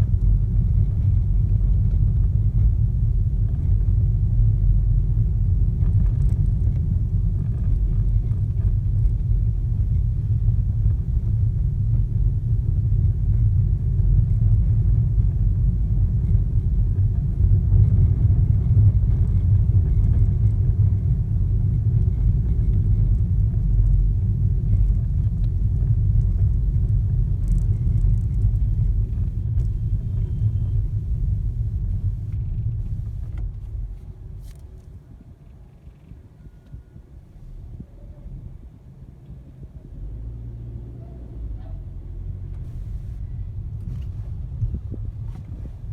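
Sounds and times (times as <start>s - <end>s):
car low rumble: 0.0s - 45.9s.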